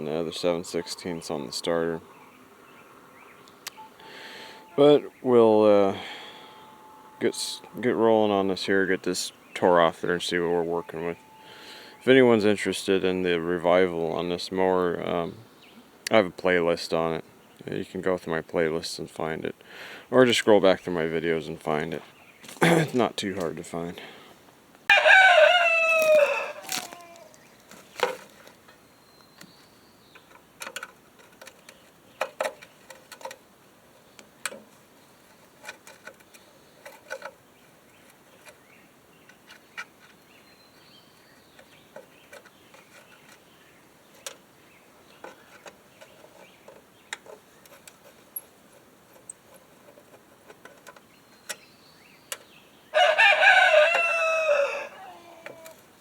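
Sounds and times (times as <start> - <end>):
rooster crowing: 6.4 - 7.7, 24.9 - 27.4, 52.9 - 55.8
light clicks and knocks: 29.4 - 33.4.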